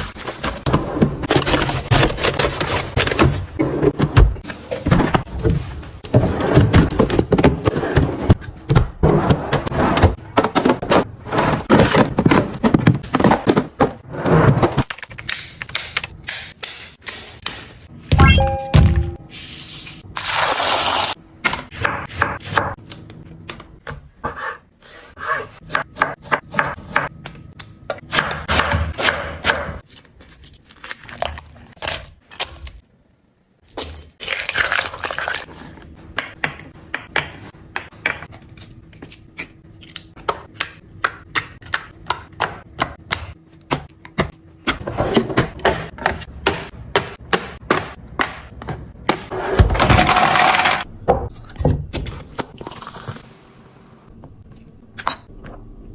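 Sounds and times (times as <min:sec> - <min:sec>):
kitchen containers knocking and scraping: 0:00.0 - 0:16.1, 0:43.8 - 0:51.3.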